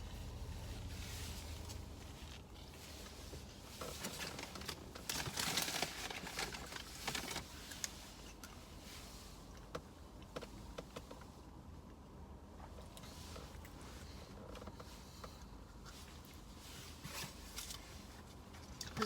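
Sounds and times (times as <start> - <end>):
paper wrapping rustling: 3.9 - 7.8.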